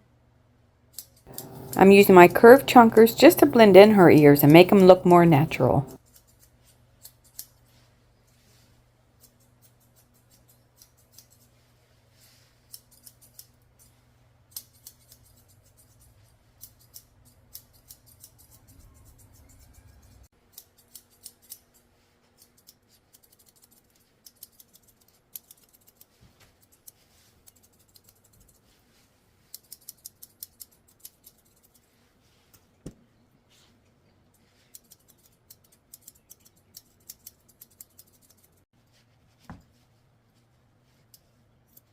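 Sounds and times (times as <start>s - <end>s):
shears snipping hair: 1.3s - 5.0s, 9.2s - 11.5s, 12.7s - 13.9s, 14.5s - 19.2s, 20.5s - 28.6s, 29.5s - 32.7s, 34.6s - 38.5s.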